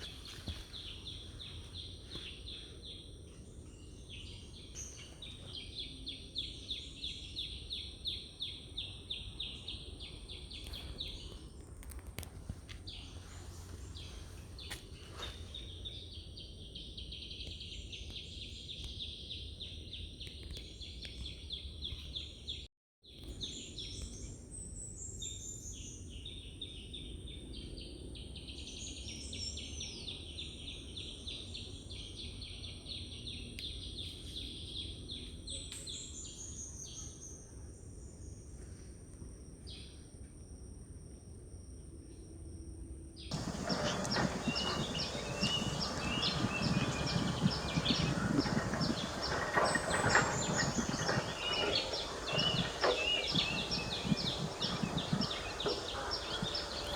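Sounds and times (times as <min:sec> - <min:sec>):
birds chattering trills: 0:43.3 - 0:56.9
low background rumble: 0:43.3 - 0:56.9
short falling bird calls: 0:43.3 - 0:56.9.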